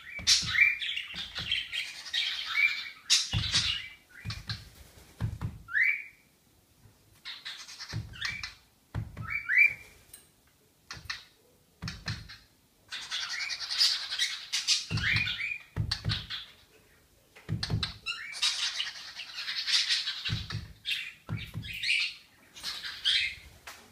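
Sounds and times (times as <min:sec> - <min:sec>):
pet bird chirping and squawking: 0:00.0 - 0:04.6, 0:07.2 - 0:08.6, 0:11.9 - 0:16.6, 0:17.8 - 0:23.4.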